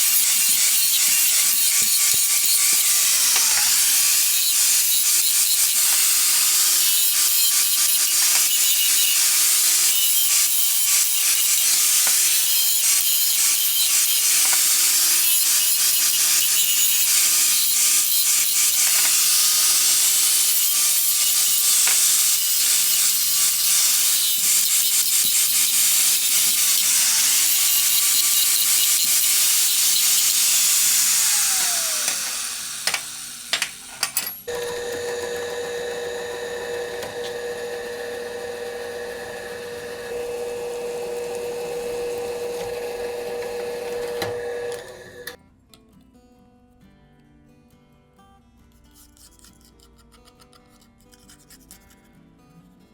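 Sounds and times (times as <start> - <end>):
power tool grinding metal: 0.0 - 45.4
motor winding down whine: 31.0 - 45.4.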